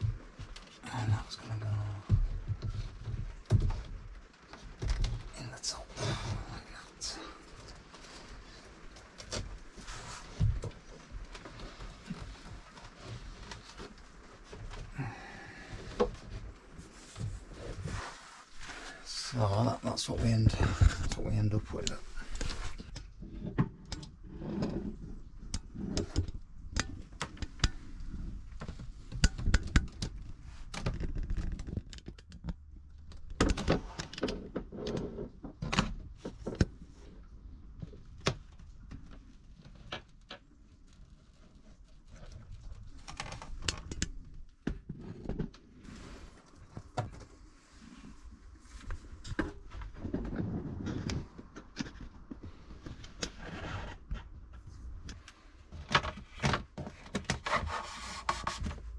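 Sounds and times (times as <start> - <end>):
objects knocking and clunking: 54.0 - 58.9.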